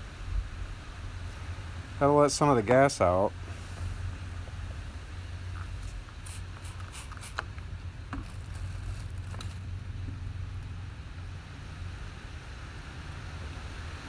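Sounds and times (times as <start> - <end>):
low rumble: 7.6 - 13.9.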